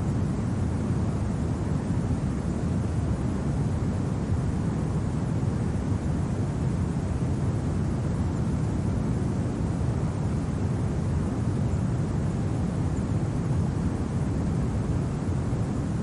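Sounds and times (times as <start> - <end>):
low wind rumble: 0.0 - 16.0.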